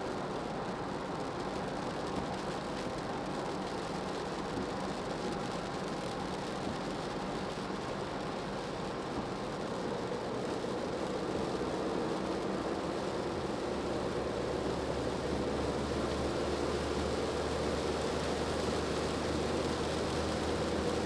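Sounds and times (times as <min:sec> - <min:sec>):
tyres hissing on wet road: 0:10.4 - 0:21.0.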